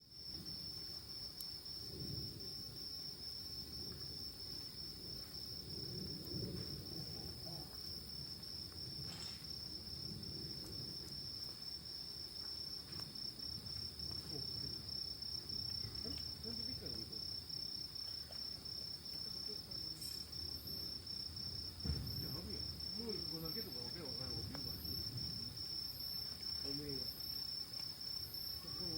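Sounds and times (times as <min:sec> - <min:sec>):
cricket trilling: 0:00.0 - 0:28.9
insect chirping: 0:00.0 - 0:28.9
sharp knock: 0:21.8 - 0:22.4.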